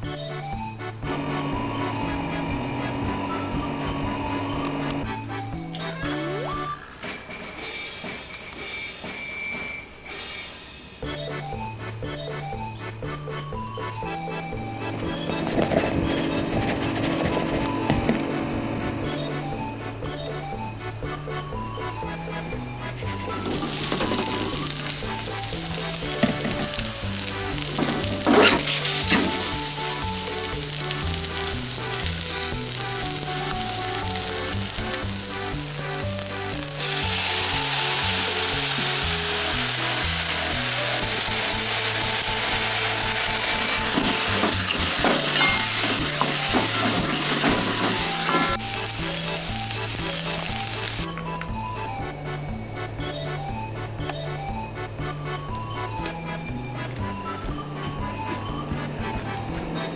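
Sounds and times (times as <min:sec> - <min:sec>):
background music with bass line: 0:00.0 - 0:06.7, 0:11.0 - 0:59.9
food sizzling in hot oil: 0:23.2 - 0:51.1.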